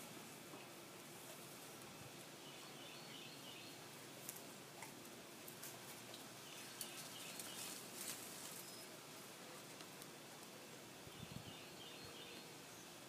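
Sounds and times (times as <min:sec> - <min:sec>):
rustling leaves and stems: 0:00.0 - 0:13.0
faint high bird chirping: 0:02.4 - 0:03.8, 0:11.1 - 0:13.0.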